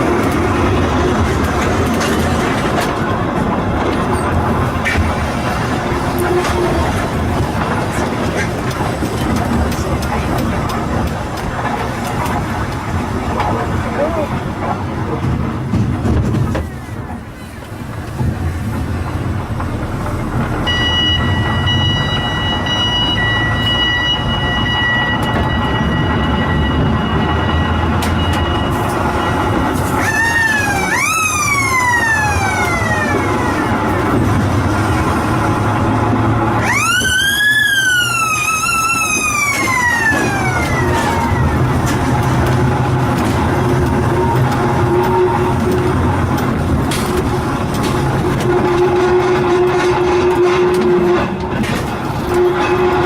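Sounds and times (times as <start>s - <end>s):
emergency vehicle siren: 19.8s - 51.5s.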